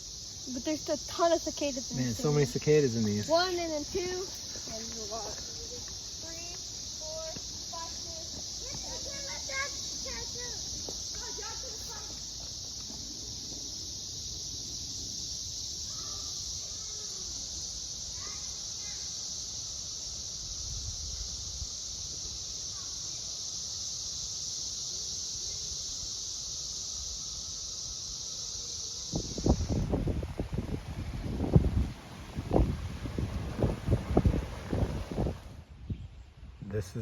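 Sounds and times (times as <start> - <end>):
cicadas droning: 0.0 - 37.0.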